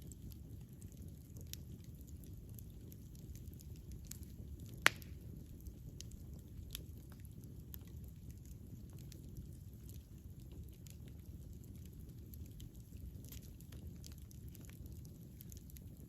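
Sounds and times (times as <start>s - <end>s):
campfire flames rumbling: 0.0s - 16.0s
small fire crackles: 0.0s - 16.0s
loud sharp fire pop: 4.8s - 5.2s.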